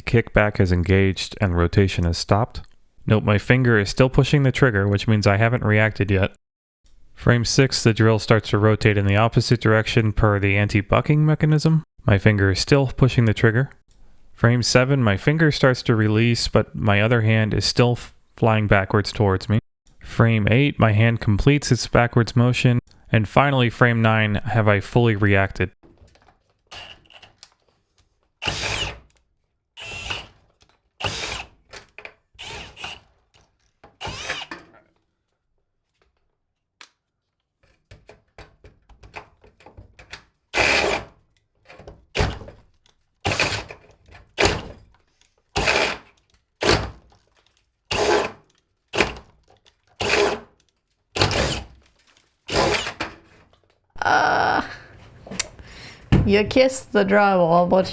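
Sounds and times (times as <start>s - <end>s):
cordless drill bursts: 26.7s - 27.2s, 28.4s - 29.0s, 29.8s - 30.4s, 31.0s - 31.5s, 32.4s - 33.0s, 34.0s - 34.5s.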